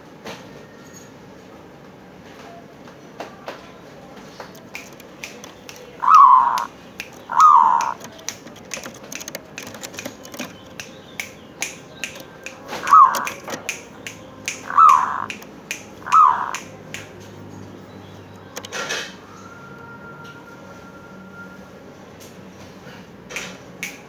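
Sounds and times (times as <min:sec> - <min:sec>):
sharp clicks: 0:04.4 - 0:17.4, 0:18.3 - 0:19.0
dove cooing: 0:04.5 - 0:10.8, 0:12.1 - 0:16.8.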